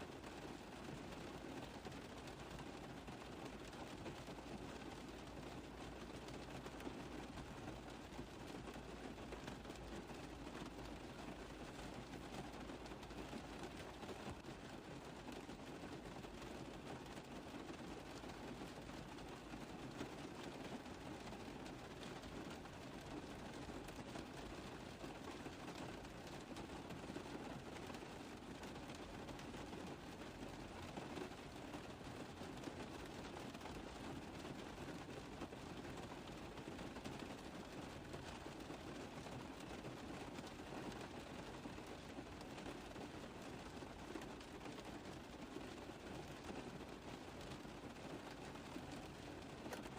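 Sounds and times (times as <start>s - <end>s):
rain drumming on a car roof: 0.0s - 49.9s.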